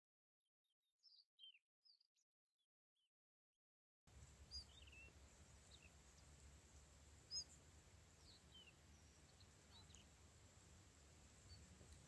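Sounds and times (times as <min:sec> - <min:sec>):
high bird chirps: 0:04.5 - 0:05.9.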